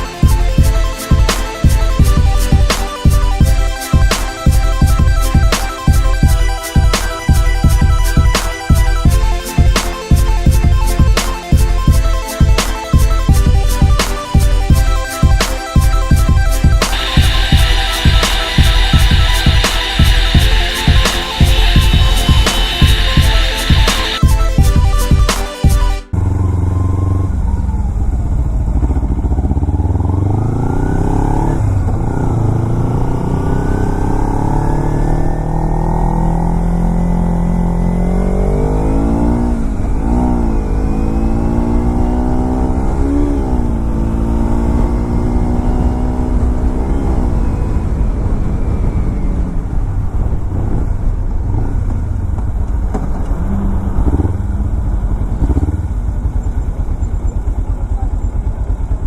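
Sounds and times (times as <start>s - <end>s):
motorcycle engine revving: 15.8s - 25.0s, 26.1s - 59.0s.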